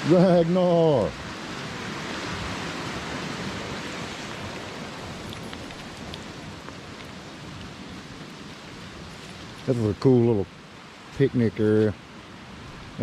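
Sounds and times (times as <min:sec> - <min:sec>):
rain and river water rushing: 0:00.0 - 0:13.0
raindrop ticks: 0:04.4 - 0:08.4.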